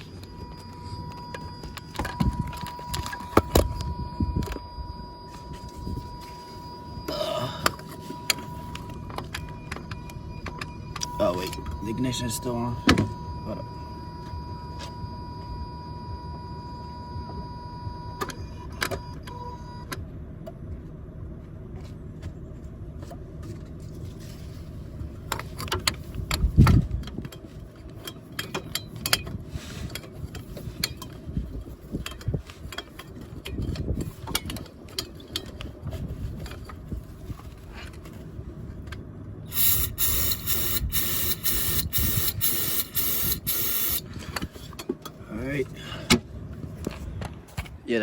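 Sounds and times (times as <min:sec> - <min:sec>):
electronic warning tone: 0:00.0 - 0:19.9, 0:39.5 - 0:44.0.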